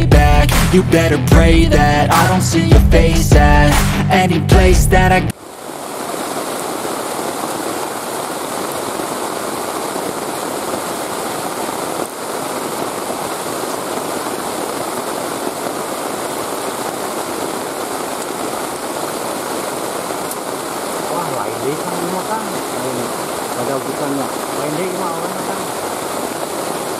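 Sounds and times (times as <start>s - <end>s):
heavy rain: 0.0s - 26.9s
river water flowing: 5.3s - 26.9s.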